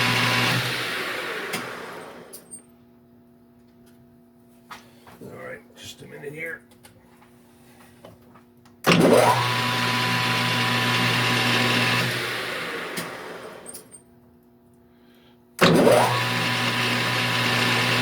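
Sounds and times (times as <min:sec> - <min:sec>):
lathe motor whining: 0:00.0 - 0:02.4, 0:08.9 - 0:13.8, 0:15.6 - 0:18.0.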